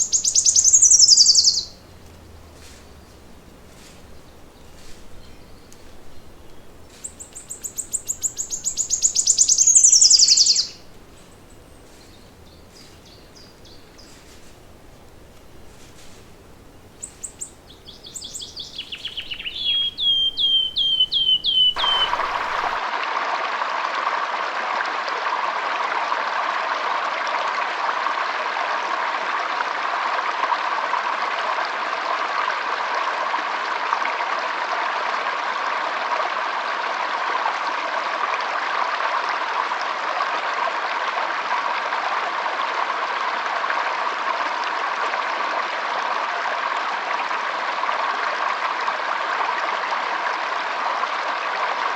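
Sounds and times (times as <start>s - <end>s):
songbird singing: 0.0s - 22.8s
stream rushing: 0.0s - 26.6s.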